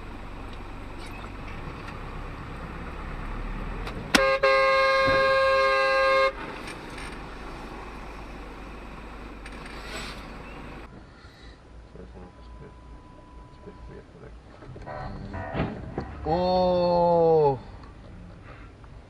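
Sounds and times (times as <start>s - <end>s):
car rumbling on road: 0.0s - 19.0s
car horn: 4.1s - 6.5s.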